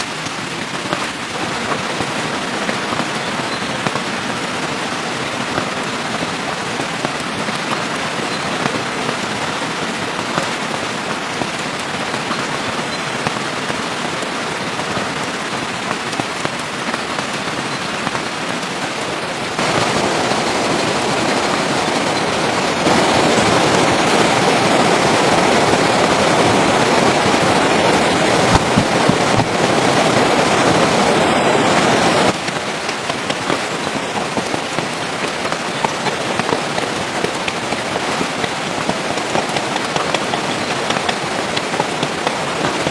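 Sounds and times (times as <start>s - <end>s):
rain falling: 0.0s - 42.9s.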